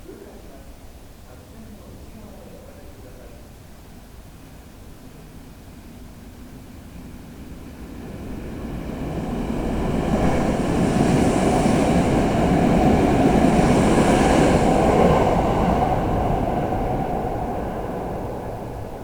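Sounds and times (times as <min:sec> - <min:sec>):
electric train passing: 0:06.4 - 0:19.0.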